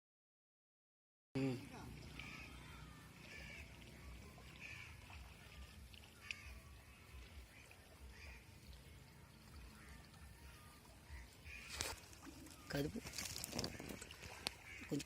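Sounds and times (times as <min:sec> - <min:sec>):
faint bird calls: 0:01.4 - 0:15.0.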